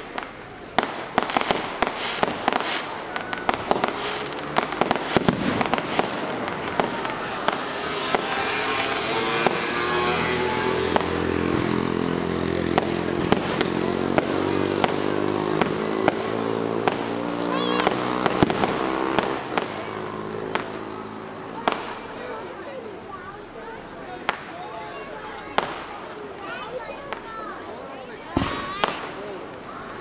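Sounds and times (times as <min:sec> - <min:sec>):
fireworks bangs and crackles: 0:00.0 - 0:30.0
steady rising drone: 0:05.4 - 0:22.2.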